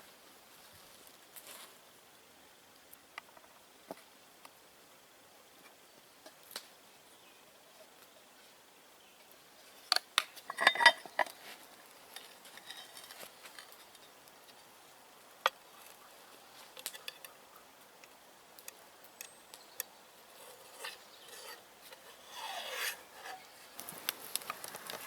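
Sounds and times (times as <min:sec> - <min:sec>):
metal cookware clinking: 0:10.5 - 0:11.4
metal cookware scraping: 0:10.5 - 0:11.4, 0:12.2 - 0:14.0, 0:20.4 - 0:23.7.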